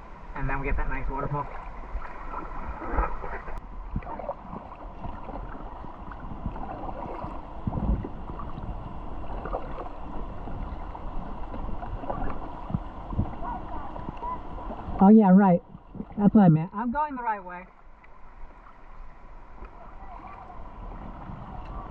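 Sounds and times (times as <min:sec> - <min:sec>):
rushing river water: 0:00.0 - 0:21.9
paddle strokes splashing: 0:01.3 - 0:15.0, 0:17.7 - 0:21.9
dull low thumps: 0:03.0 - 0:17.1.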